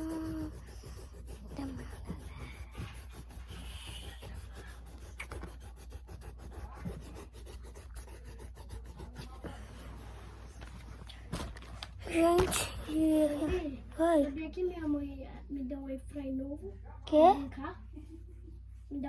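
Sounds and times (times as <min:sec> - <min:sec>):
pencil scratching on paper: 0:00.0 - 0:11.1.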